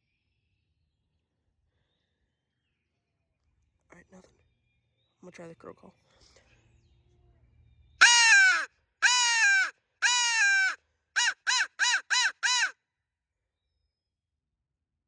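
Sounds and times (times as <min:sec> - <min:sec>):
crow call caws: 0:08.0 - 0:12.7.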